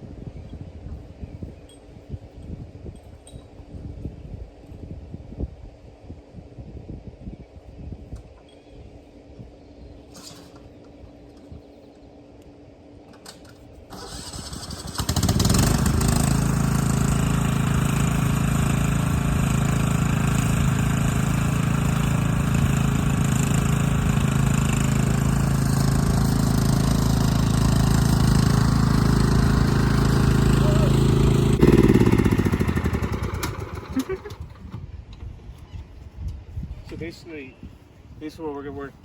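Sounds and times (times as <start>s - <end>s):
engine starting and running: 10.1s - 10.9s, 13.1s - 34.9s.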